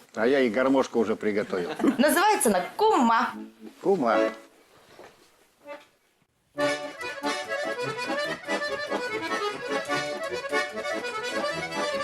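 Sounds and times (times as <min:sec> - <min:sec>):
button accordion folk tune: 0:02.6 - 0:04.5, 0:05.6 - 0:05.9, 0:06.5 - 0:12.0.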